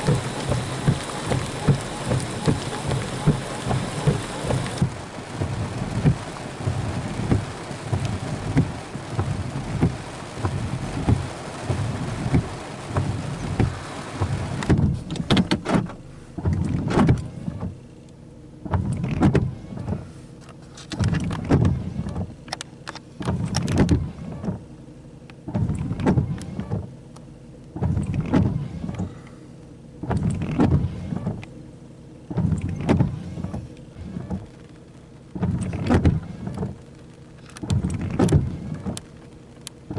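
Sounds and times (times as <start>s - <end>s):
heavy rain: 0.0s - 18.0s, 32.2s - 39.9s.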